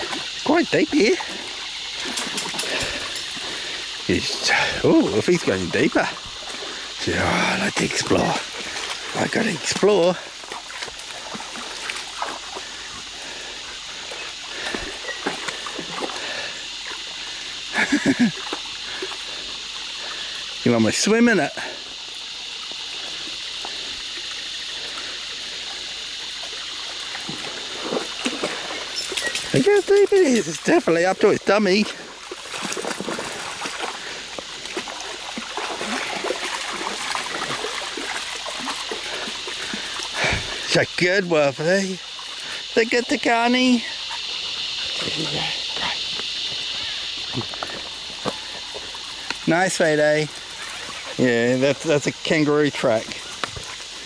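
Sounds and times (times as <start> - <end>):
creek water trickling: 0.0 - 54.0
water drips: 0.0 - 54.0
dog splashing in water: 8.1 - 12.9, 27.0 - 31.0, 31.9 - 40.7.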